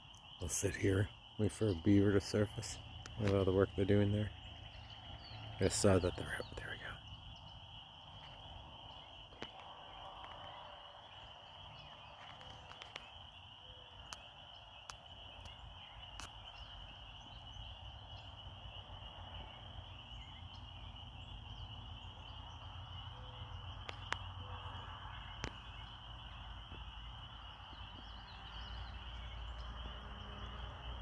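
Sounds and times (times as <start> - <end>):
insect chorus trilling: 0.0 - 31.0
faint clicks: 23.8 - 24.3.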